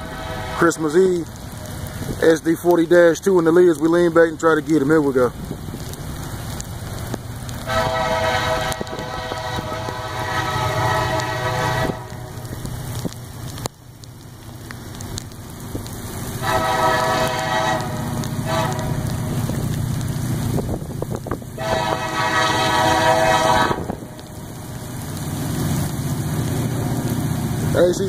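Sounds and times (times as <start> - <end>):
train air horn: 0.0 - 1.0, 7.6 - 12.4, 16.4 - 19.2, 21.6 - 24.3
diesel engine rumble: 0.0 - 28.0
rain falling: 0.0 - 28.0.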